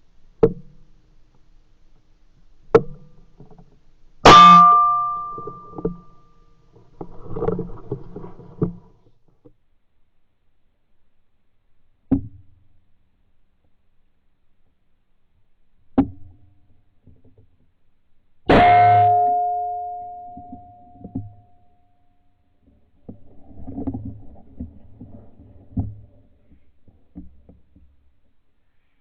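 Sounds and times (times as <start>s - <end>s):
ringing tone: 4.3s - 6.3s, 18.5s - 22.0s.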